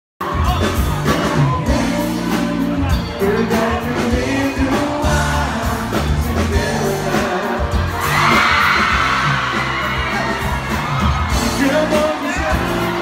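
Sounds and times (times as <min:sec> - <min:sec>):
man singing: 0:00.2 - 0:08.5, 0:11.4 - 0:13.0
live pop band playing: 0:00.2 - 0:13.0
crowd screaming: 0:07.8 - 0:13.0.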